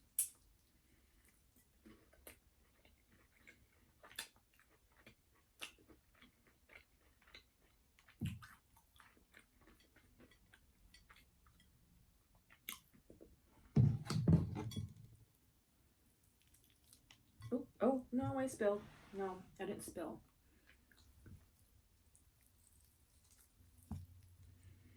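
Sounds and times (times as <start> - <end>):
chewing fried food: 0.0 - 13.4, 16.0 - 17.5, 20.3 - 24.9
wet mouth clicks: 0.1 - 0.4.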